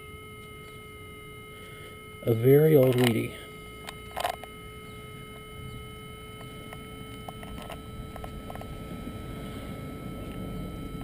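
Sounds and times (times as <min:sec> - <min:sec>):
thin electronic whine: 0:00.0 - 0:11.0
handling noise rustling: 0:02.7 - 0:08.9.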